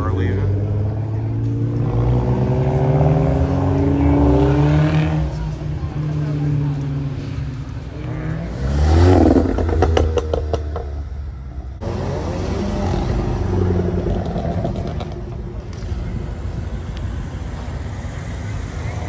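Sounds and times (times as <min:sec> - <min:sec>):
sports car engine revving: 0:00.2 - 0:11.2.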